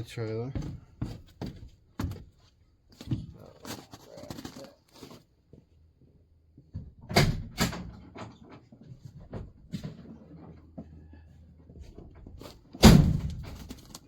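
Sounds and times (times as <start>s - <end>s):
knocks and thuds in a trailer: 0.5s - 2.3s, 6.6s - 10.6s, 11.8s - 14.0s.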